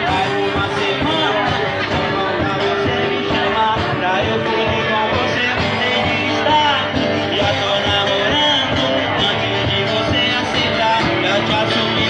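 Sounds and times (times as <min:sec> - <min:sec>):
live band playing romantic song: 0:00.0 - 0:12.0.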